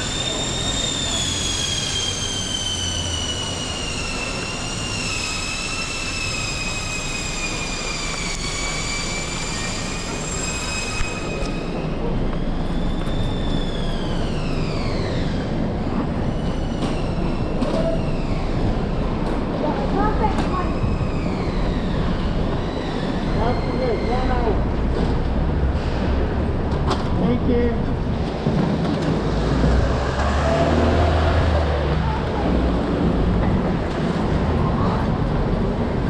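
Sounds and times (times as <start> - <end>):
high-pitched mechanical whine: 0.0 - 28.2
street noise hiss: 0.0 - 36.0.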